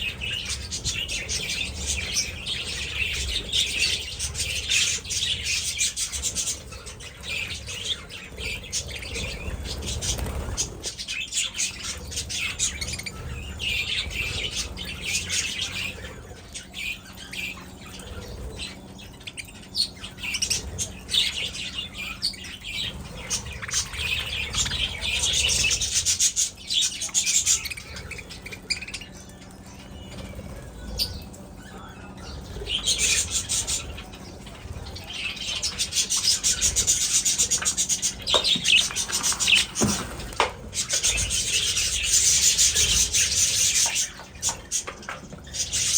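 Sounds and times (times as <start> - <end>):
budgies chattering and chirping: 0.0 - 45.9
wing flutter: 8.3 - 11.2, 35.9 - 45.9.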